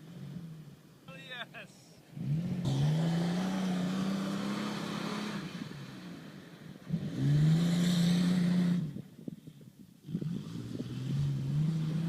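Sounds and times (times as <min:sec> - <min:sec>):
engine revving hard: 0:02.2 - 0:06.0, 0:06.9 - 0:08.9.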